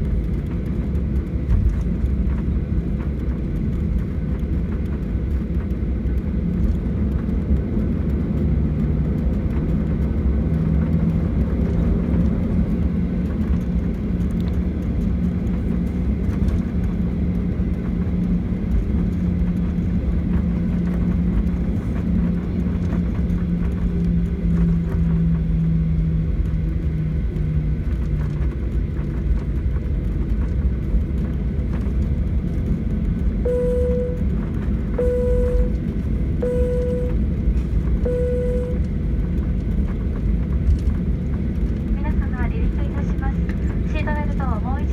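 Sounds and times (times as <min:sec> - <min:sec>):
jet engine rumble in cabin: 0:00.0 - 0:44.9
low hum: 0:09.1 - 0:44.9
short repeated tone: 0:33.5 - 0:34.3, 0:35.0 - 0:35.8, 0:36.4 - 0:37.2, 0:38.0 - 0:38.8.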